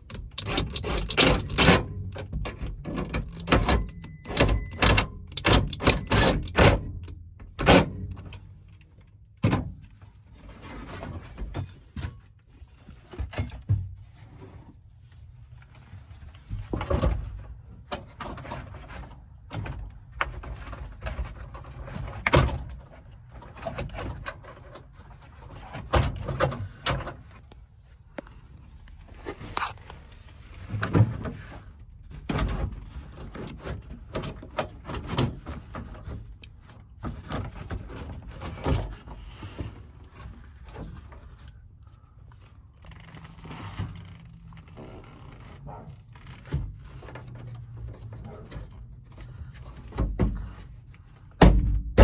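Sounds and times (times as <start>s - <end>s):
tools knocking and scraping on car trim: 45.6s - 52.0s.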